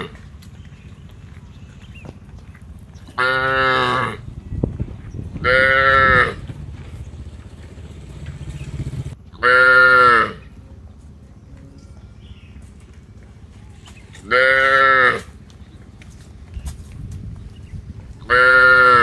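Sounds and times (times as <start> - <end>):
low rumbling background: 0.0 - 9.4, 15.2 - 18.4
cow mooing: 3.2 - 4.3, 5.4 - 6.5, 9.4 - 10.5, 14.2 - 15.3, 18.2 - 19.0.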